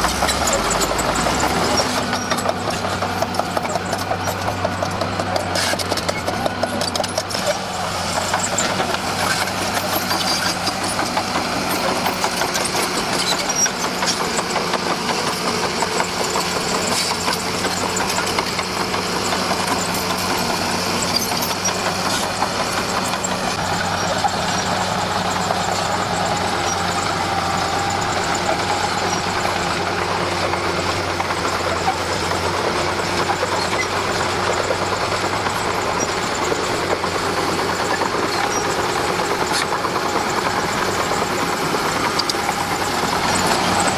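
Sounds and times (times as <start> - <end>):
bulldozer diesel engine clattering: 0.0 - 43.9.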